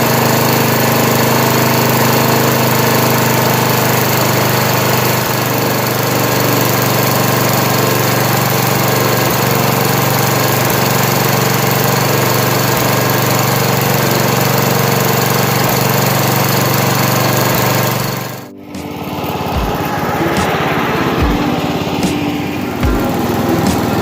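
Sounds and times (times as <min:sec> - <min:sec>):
lawn tractor engine running: 0:00.0 - 0:24.0.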